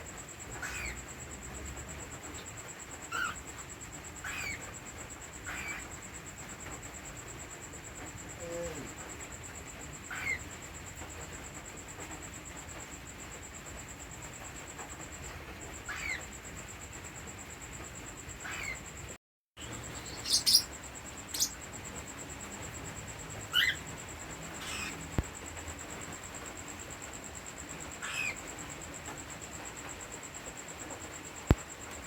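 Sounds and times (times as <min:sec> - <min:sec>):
cockatiels chirping: 0:00.5 - 0:01.0, 0:03.1 - 0:03.4, 0:04.2 - 0:04.7, 0:05.4 - 0:05.9, 0:10.1 - 0:10.5, 0:15.9 - 0:16.3, 0:18.4 - 0:18.8, 0:19.6 - 0:21.6, 0:23.5 - 0:23.8, 0:24.6 - 0:25.0, 0:28.0 - 0:28.4.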